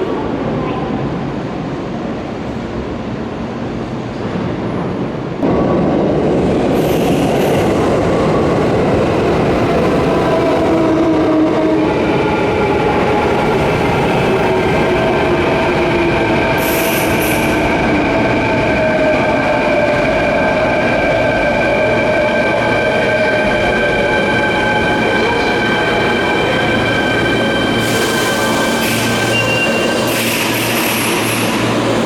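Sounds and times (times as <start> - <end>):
train wheels rumbling on rails: 0.0 - 32.0
train whining and squealing: 6.7 - 32.0.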